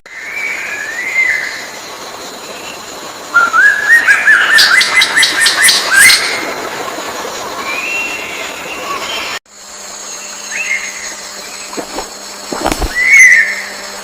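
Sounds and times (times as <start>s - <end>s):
bird whistling notes: 11.6s - 13.8s.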